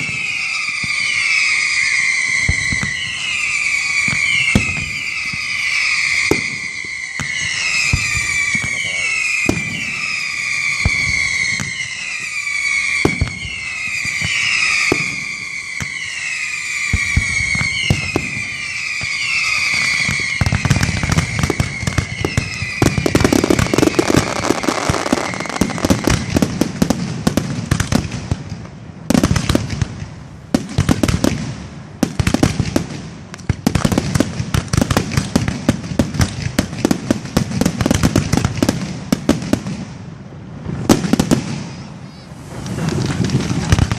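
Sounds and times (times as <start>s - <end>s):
firework whistles falling in pitch: 0.0s - 27.9s, 40.8s - 43.9s
rapid firework crackling: 0.0s - 40.0s, 40.6s - 43.9s
firework bangs: 0.0s - 43.9s.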